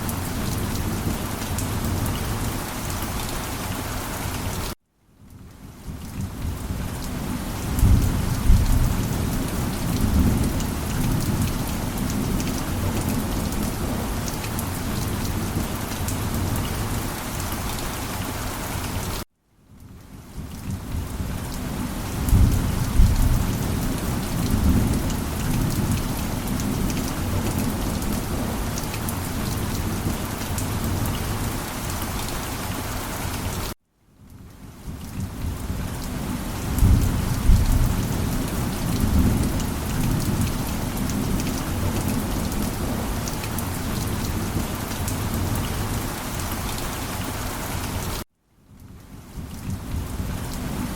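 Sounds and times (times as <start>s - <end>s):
heavy rain: 0.0s - 50.9s
thunder rolling: 22.2s - 26.1s.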